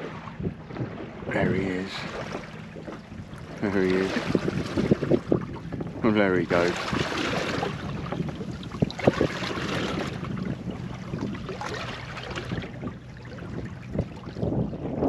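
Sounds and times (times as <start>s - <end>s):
water washing against boat hull: 0.0s - 15.0s.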